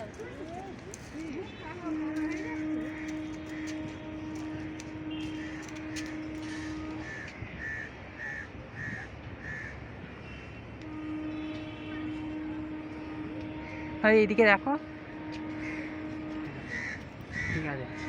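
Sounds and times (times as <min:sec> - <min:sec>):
crow cawing: 0:07.0 - 0:09.8, 0:16.7 - 0:17.7.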